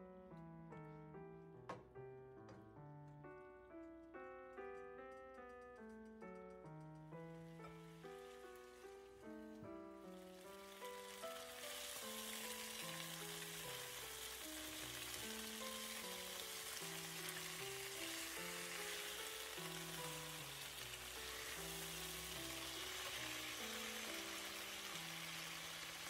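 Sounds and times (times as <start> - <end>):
background music melody: 0.0 - 26.0
chicken sizzling in oil: 7.4 - 26.0
tongs turning meat: 13.2 - 26.0.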